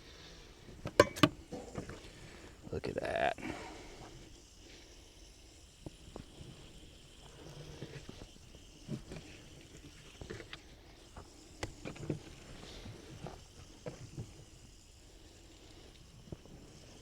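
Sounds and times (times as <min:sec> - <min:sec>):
sharp knocks on cutting board: 0:01.0 - 0:01.3.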